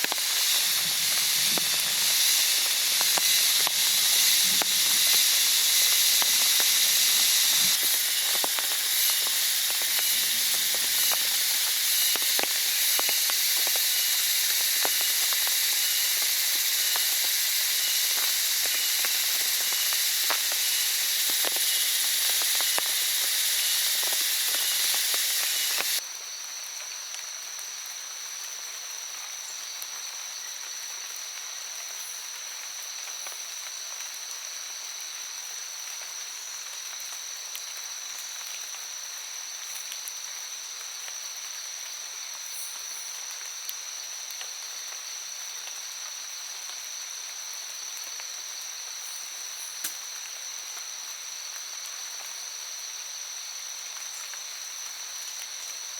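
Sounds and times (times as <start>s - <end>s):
heavy rain hissing: 0.0s - 26.0s
raindrops striking close by: 0.0s - 55.9s.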